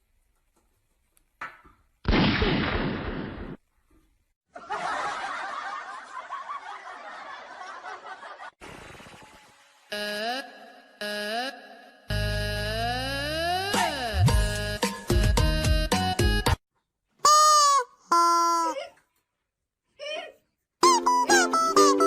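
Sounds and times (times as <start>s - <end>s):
people laughing: 4.5s - 8.6s.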